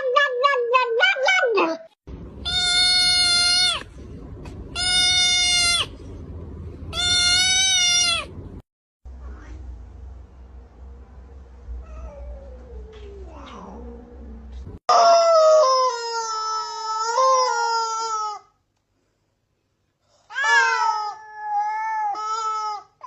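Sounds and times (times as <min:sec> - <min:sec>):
cat yowling: 0:00.0 - 0:03.9, 0:04.8 - 0:05.9, 0:06.9 - 0:08.3, 0:20.3 - 0:22.7.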